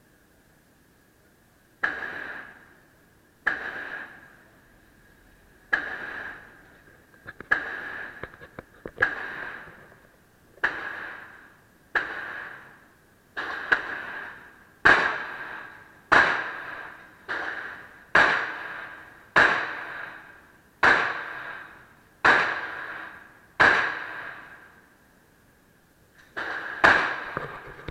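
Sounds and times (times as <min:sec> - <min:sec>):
pistol shots with echo: 0:01.8 - 0:02.8, 0:03.4 - 0:04.7, 0:05.7 - 0:06.7, 0:07.5 - 0:08.4, 0:09.0 - 0:10.0, 0:10.6 - 0:24.8, 0:26.3 - 0:27.4.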